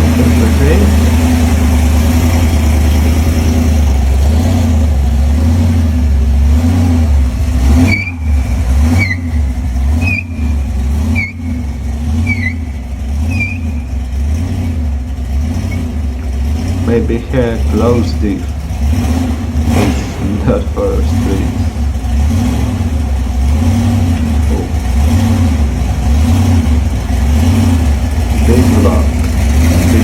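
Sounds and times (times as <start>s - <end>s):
car engine idling lumpily: 0.0s - 30.0s.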